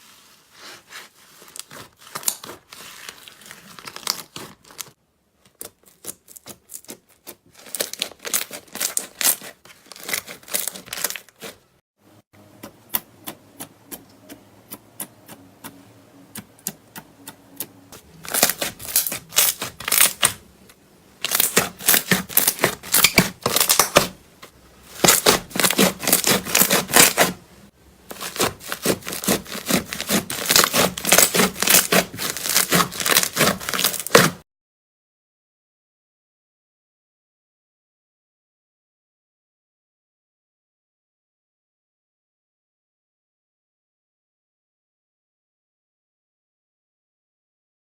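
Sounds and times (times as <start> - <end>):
slime popping and crackling: 18.2 - 20.4, 21.2 - 24.1, 28.1 - 34.4.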